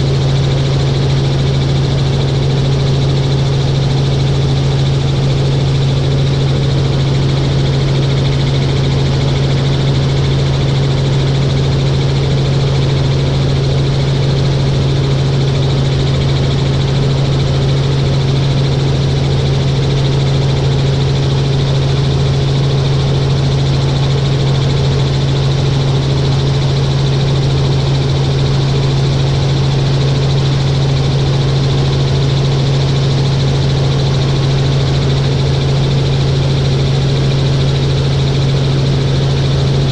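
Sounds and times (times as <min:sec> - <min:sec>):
helicopter drone: 0:00.0 - 0:39.9.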